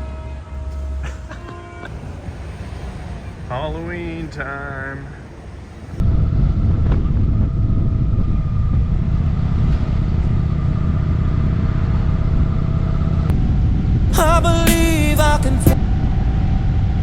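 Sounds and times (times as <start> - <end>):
wind and road rumble: 1.6 - 17.0
music: 14.2 - 15.8.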